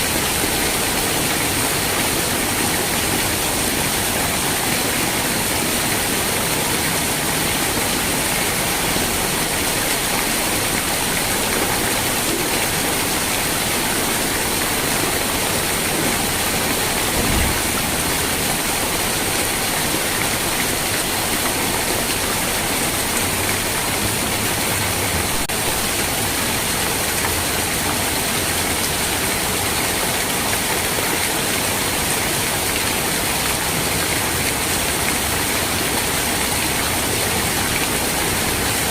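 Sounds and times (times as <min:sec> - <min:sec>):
steady rain falling: 0:00.0 - 0:38.9
low thump: 0:17.0 - 0:18.1.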